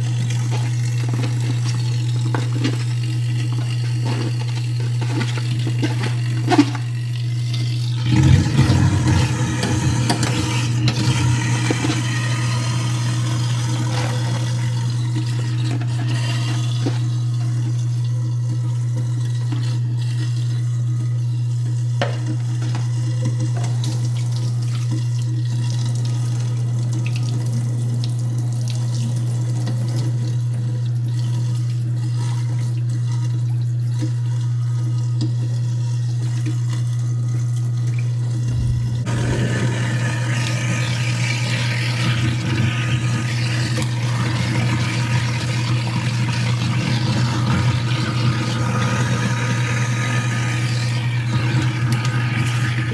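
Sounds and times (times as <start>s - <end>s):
food waste grinding and rattling: 0.0s - 17.7s, 38.5s - 52.9s
garbage disposal motor hum: 0.0s - 52.9s.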